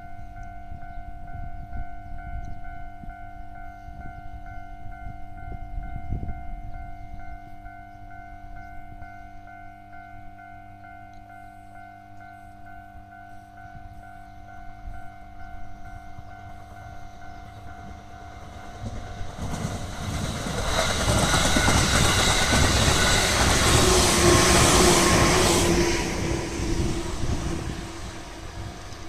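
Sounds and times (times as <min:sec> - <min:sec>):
level crossing warning bell ringing: 0:00.0 - 0:29.0
electric train passing: 0:00.9 - 0:29.0
train wheels clattering on rails: 0:16.4 - 0:29.0.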